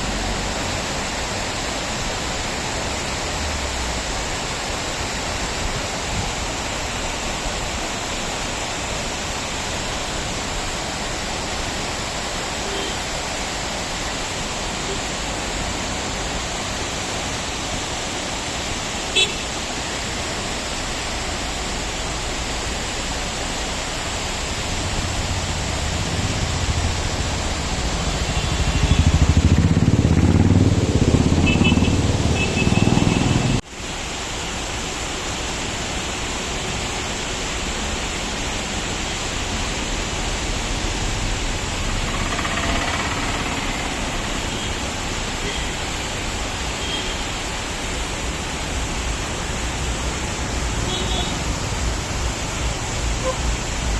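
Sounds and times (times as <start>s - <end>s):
waterfall rushing: 0.0s - 53.9s
vehicle engine passing: 24.8s - 33.6s, 40.8s - 45.2s.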